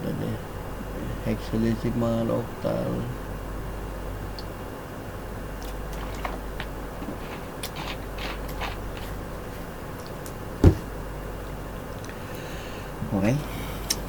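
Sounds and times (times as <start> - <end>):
low background hum: 0.0 - 14.0
dull thump: 10.6 - 10.9.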